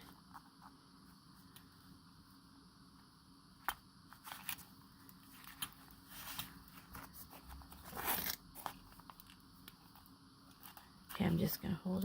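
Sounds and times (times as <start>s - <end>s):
craft pieces rustling and scraping: 4.1s - 11.2s.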